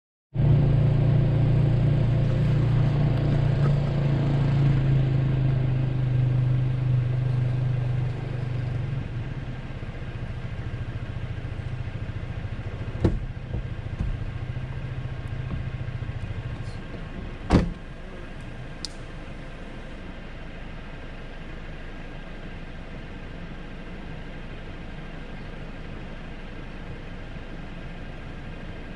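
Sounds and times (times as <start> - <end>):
engine idling: 0.4 - 28.9
sharp knocks: 13.0 - 14.3.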